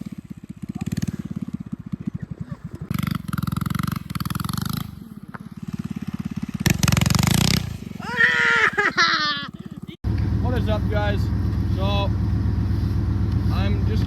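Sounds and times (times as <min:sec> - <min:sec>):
engine running with pulsing beat: 0:09.3 - 0:14.0.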